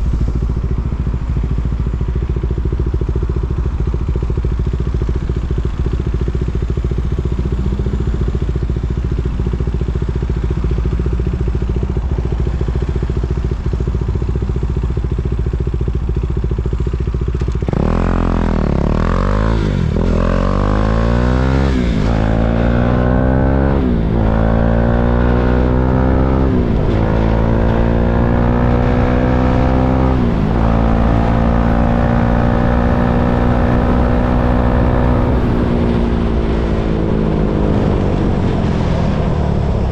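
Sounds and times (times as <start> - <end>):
motorcycle engine idling: 0.0 - 21.1
motorcycle accelerating through gears: 0.0 - 39.9.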